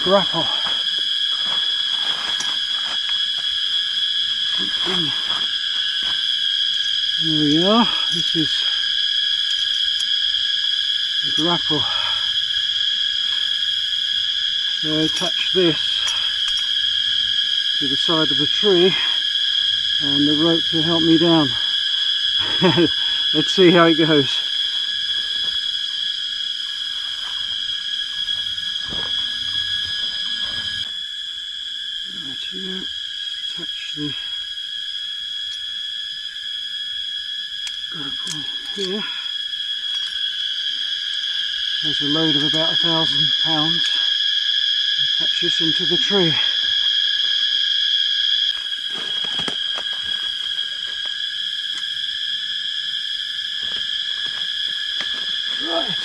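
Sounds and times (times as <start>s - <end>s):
forest insects droning: 0.0s - 56.0s.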